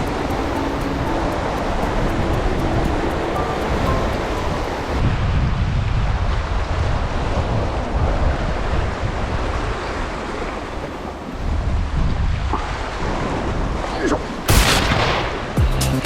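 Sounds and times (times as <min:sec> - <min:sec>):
sea waves washing against rocks: 0:00.0 - 0:05.2
wind buffeting microphone: 0:00.0 - 0:14.6.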